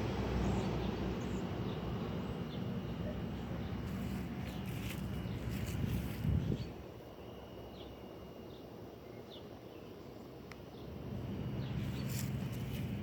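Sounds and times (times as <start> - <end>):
faint high hum: 0.0 - 13.0.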